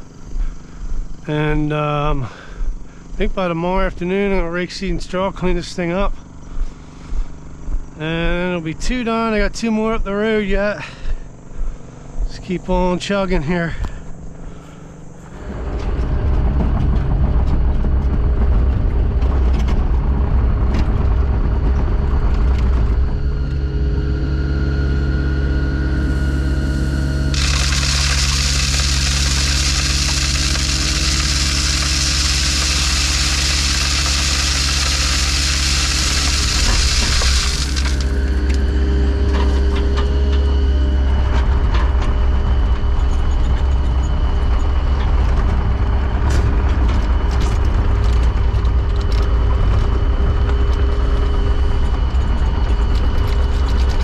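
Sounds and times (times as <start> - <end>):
earthmoving machine engine running: 0.0 - 54.0
loud hiss: 27.3 - 38.3.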